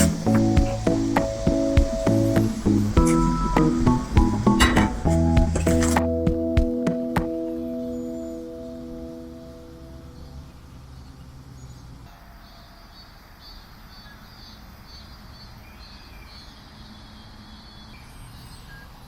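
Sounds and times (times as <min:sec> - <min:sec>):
faint high chirping: 0:00.0 - 0:19.0.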